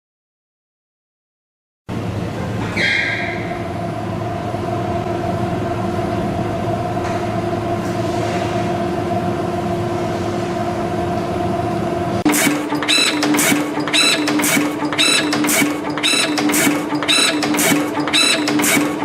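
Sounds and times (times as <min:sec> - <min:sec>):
machine humming two tones: 0:01.9 - 0:19.0
machine clacking strokes: 0:12.2 - 0:19.0.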